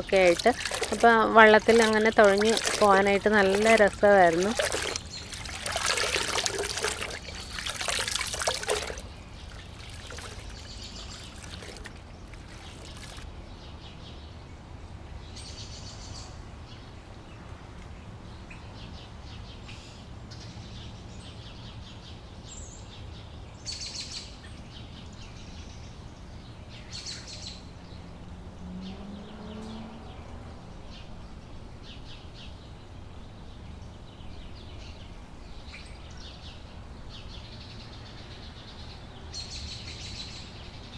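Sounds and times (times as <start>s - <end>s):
birds chirping: 0.0s - 13.2s
water splashing: 0.0s - 13.3s.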